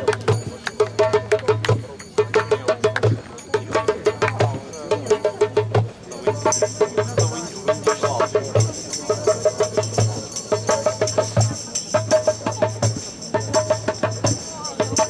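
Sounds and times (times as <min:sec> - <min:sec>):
tambourine jingles: 0:00.0 - 0:15.0
quick drum strokes: 0:04.4 - 0:15.0.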